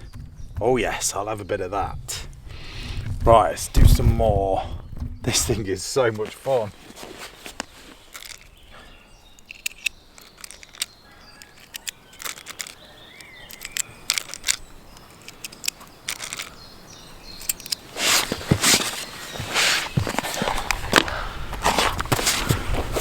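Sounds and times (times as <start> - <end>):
faint birds chirping: 0.0 - 23.0
rustling: 2.3 - 23.0
handling clicks and knocks: 4.9 - 23.0.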